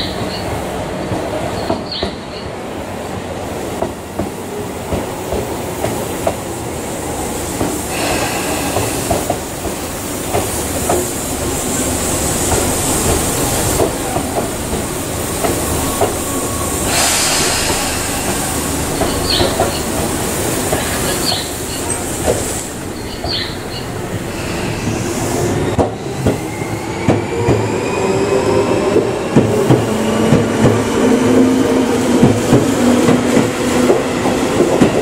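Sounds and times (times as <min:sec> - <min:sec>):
loud air hiss: 0:05.6 - 0:27.0
train wheel clatter: 0:07.5 - 0:23.9, 0:28.9 - 0:35.0
train wheel squeal: 0:15.5 - 0:20.0, 0:20.8 - 0:22.0, 0:23.0 - 0:28.7.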